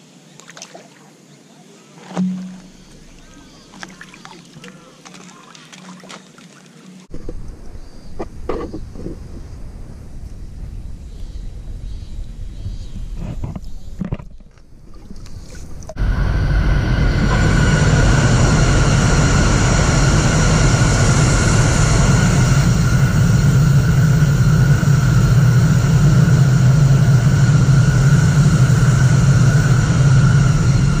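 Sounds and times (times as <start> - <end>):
high-pitched train whine: 16.0 - 31.0
train rumbling past: 16.0 - 31.0.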